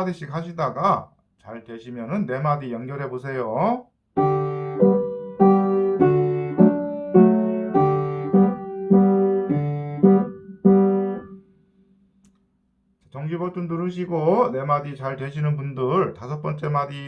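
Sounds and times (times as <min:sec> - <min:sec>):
piano melody with chords: 0:04.2 - 0:11.6.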